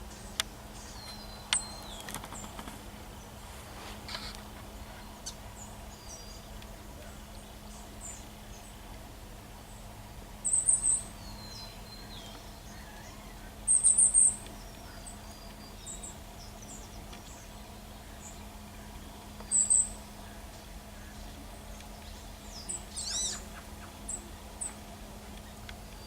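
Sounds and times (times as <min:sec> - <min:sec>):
faint whistled bird calls: 0:10.4 - 0:21.5, 0:22.1 - 0:24.8
high-pitched bird chirps: 0:22.9 - 0:23.4.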